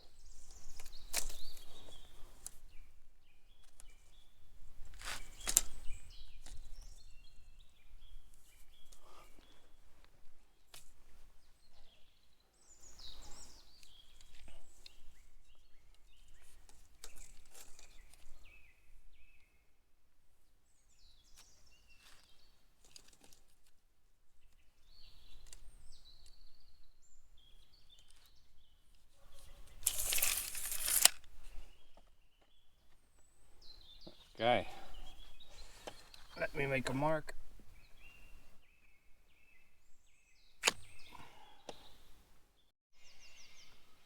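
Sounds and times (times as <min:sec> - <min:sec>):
small birds chirping: 0:00.0 - 0:44.0
loud scraping rustle: 0:29.2 - 0:31.6
handling clicks and rustles: 0:29.6 - 0:31.4.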